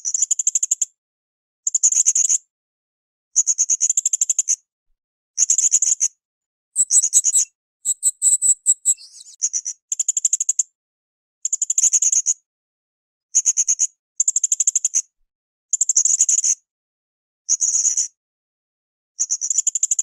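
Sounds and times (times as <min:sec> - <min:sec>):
parrot high chattering trills: 0:06.8 - 0:09.4.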